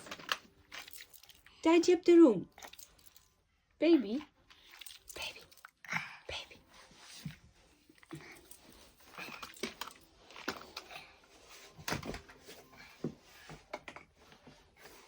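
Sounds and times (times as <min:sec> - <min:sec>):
toys clicking and knocking: 0:09.3 - 0:10.9.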